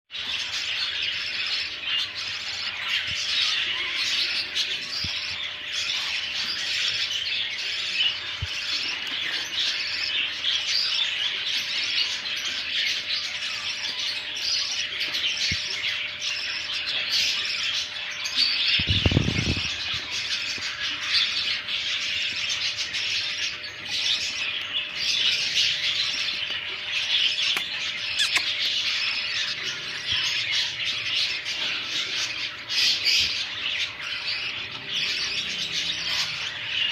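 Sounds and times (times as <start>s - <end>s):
bird chicks chirping: 0.1s - 36.9s.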